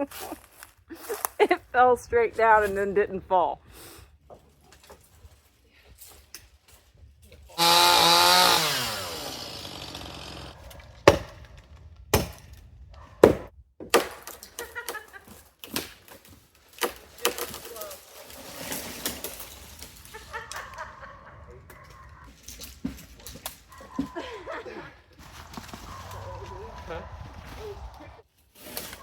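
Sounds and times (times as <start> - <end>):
chainsaw revving: 7.6 - 10.6
wooden knocks and cracks: 10.7 - 18.1.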